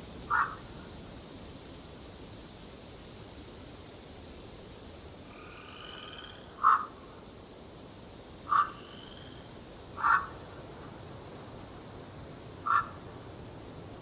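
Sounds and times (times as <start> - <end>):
forest ambience hiss: 0.0 - 14.0
loud animal calls: 0.3 - 0.6, 5.7 - 6.9, 8.5 - 9.1, 10.0 - 10.4, 12.6 - 13.0.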